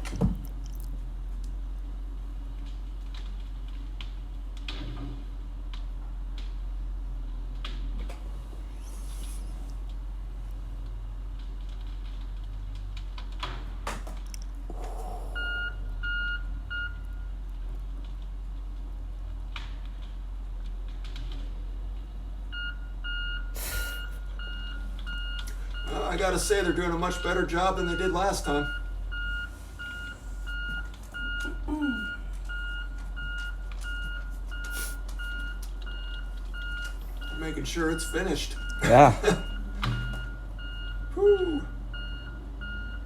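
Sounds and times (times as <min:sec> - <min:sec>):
low engine hum: 0:00.0 - 0:43.0
steady low hum: 0:14.3 - 0:17.6
reversing alarm beeping: 0:15.4 - 0:17.3, 0:22.6 - 0:43.0
short falling voice: 0:38.8 - 0:39.4.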